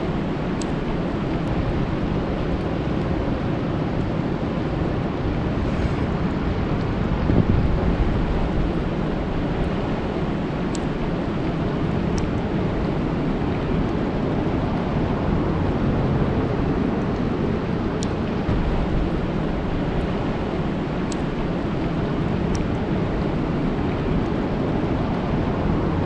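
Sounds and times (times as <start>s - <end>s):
rain falling on lake: 17.2s - 26.0s.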